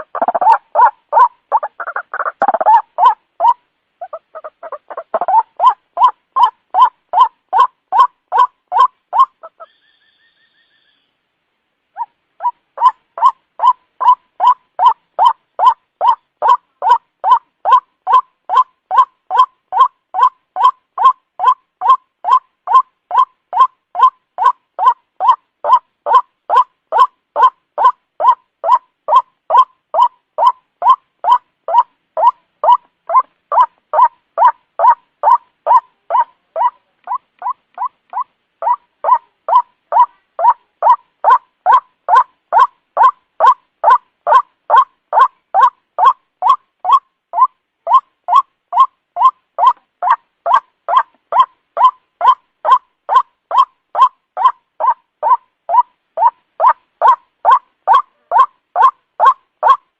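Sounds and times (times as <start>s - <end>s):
bird calls repeated fast: 0.0s - 11.2s, 11.9s - 59.9s.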